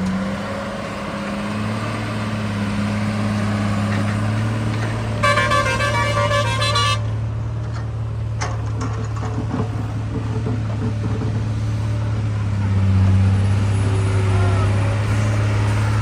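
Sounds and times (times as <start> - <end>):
diesel engine running: 0.0 - 16.0
vehicle horn: 5.2 - 7.2.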